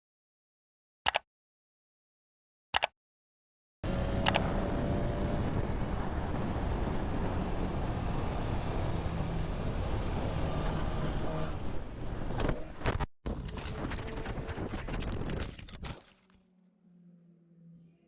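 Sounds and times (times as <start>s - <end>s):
sharp click: 2.8s - 3.0s
car road and engine rumble: 3.8s - 13.1s.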